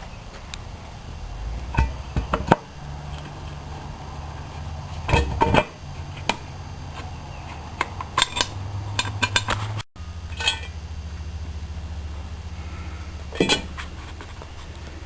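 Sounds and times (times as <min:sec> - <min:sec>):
steady low hum: 0:00.0 - 0:15.0
metal tools clinking and knocking: 0:10.3 - 0:10.8.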